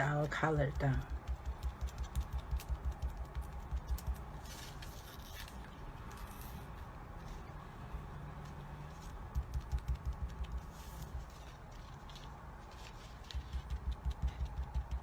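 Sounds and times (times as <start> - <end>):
ink dabber tapping on stencil: 0.3 - 4.2, 9.3 - 10.8, 13.3 - 15.0
rubbing sound: 0.8 - 15.0.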